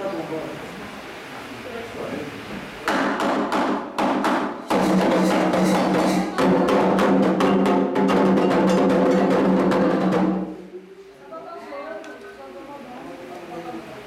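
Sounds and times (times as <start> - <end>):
hand drums playing: 4.6 - 10.8.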